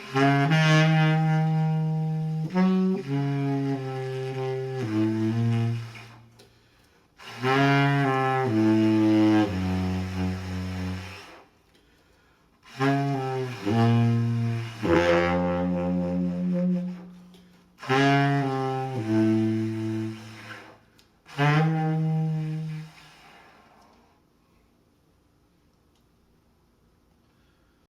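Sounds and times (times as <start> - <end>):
saxophone playing low notes: 0.0 - 6.4, 7.2 - 11.5, 12.6 - 23.6.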